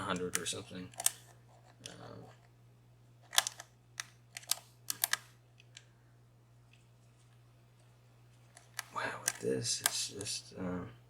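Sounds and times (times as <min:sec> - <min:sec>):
lock pick clicking against pins: 0:03.3 - 0:05.2.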